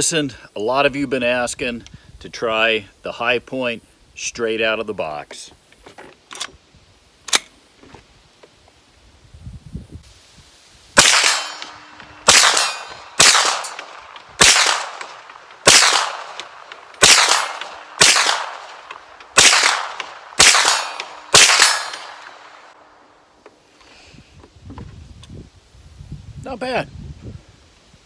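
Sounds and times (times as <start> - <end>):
gunshots with echo: 11.0 - 22.7.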